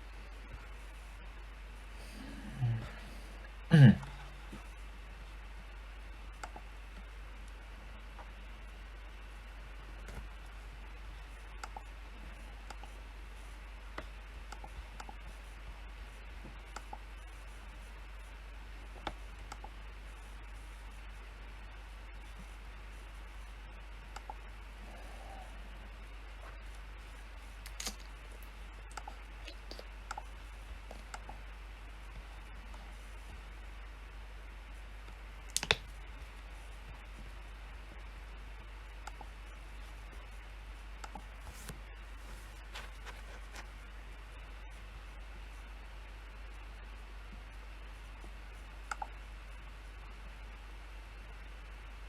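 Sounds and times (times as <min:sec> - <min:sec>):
steady low hum: 0:00.0 - 0:52.0
keyboard and mouse clicks: 0:11.6 - 0:11.9, 0:24.1 - 0:24.4, 0:28.9 - 0:30.3, 0:35.5 - 0:35.9.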